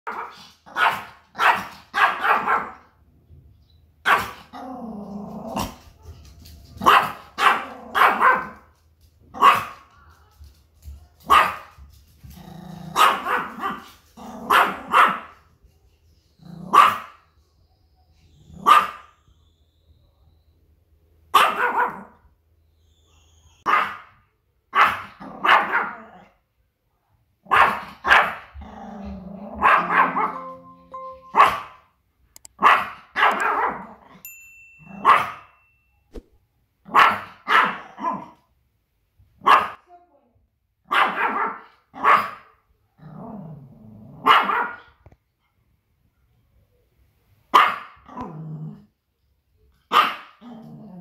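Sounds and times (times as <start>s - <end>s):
small dog barking: 0.1s - 2.9s, 4.0s - 4.6s, 6.8s - 8.7s, 9.3s - 9.9s, 11.2s - 11.8s, 12.9s - 15.4s, 16.6s - 17.2s, 18.6s - 19.1s, 21.3s - 22.2s, 23.6s - 26.3s, 27.4s - 28.6s, 29.4s - 30.4s, 32.6s - 34.2s, 34.9s - 35.5s, 36.9s - 38.4s, 39.4s - 40.0s, 40.8s - 42.6s, 44.2s - 45.0s, 47.5s - 48.4s, 49.9s - 50.5s
dog growling: 4.6s - 5.8s, 12.4s - 13.0s, 28.6s - 29.6s, 50.4s - 51.0s.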